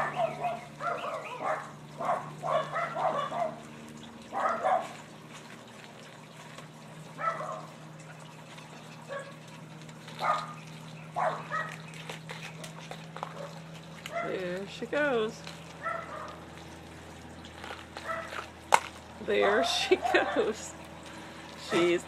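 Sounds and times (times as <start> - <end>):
dog yipping and barking: 0.0 - 3.7, 4.3 - 5.0, 7.2 - 7.7, 9.0 - 9.4, 10.2 - 12.1, 13.3 - 14.4, 15.8 - 16.4, 18.0 - 18.4, 19.4 - 20.6.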